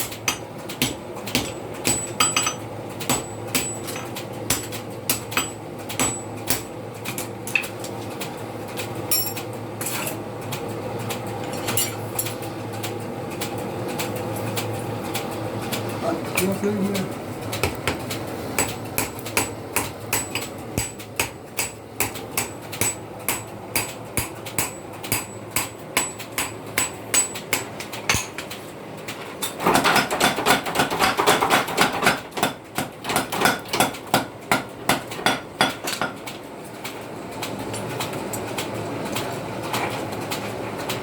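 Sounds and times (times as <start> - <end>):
hammer striking steel on anvil: 0.0 - 6.7, 9.1 - 9.4, 18.6 - 28.5.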